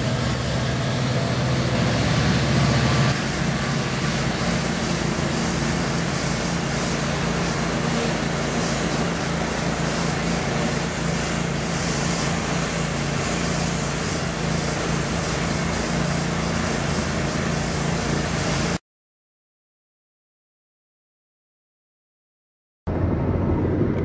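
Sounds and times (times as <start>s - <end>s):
diesel engine hum: 0.0s - 18.7s, 22.9s - 24.0s
rushing of wheels and spray: 0.0s - 18.8s.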